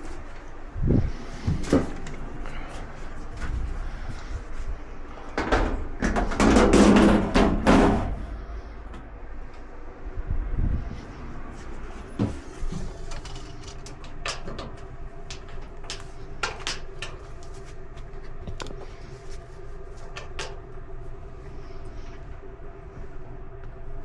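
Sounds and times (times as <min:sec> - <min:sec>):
faint steady hum: 0:00.0 - 0:24.0
clicks and knocks of handling parts: 0:12.2 - 0:18.9, 0:20.0 - 0:20.6.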